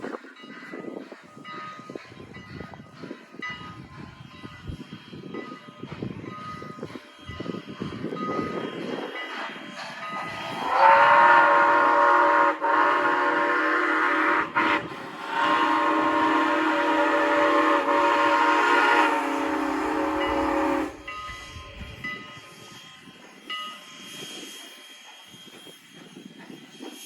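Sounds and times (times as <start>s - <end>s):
locomotive chime horn: 10.5s - 22.5s.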